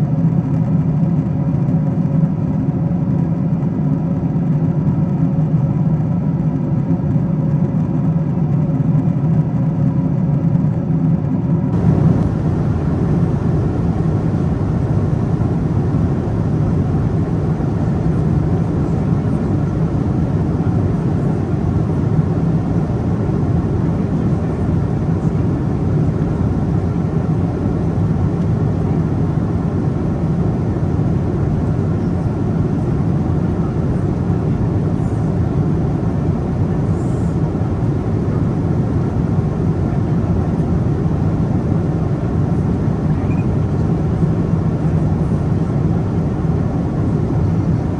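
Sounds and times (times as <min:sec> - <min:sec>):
airplane cabin noise: 0:11.7 - 0:47.9.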